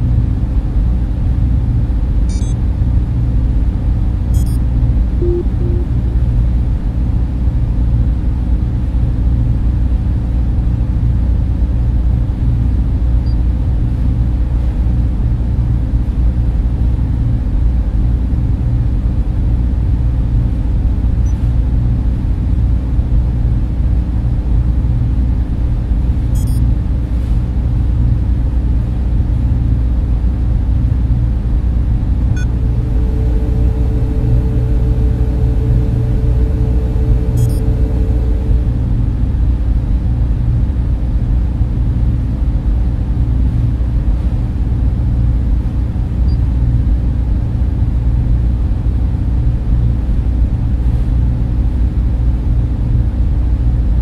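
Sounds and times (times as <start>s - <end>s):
server cooling fans humming: 0.0s - 8.1s, 27.8s - 41.4s
steady tone: 5.2s - 6.2s, 32.3s - 39.4s.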